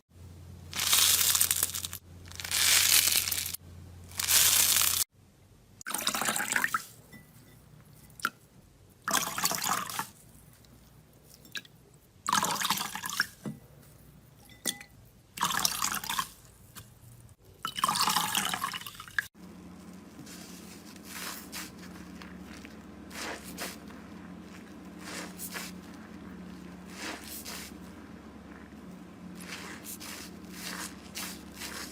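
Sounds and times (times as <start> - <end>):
wet slime squelching: 19.3 - 31.9
faint wet crackles: 19.4 - 31.9
steady low hum: 19.4 - 31.9.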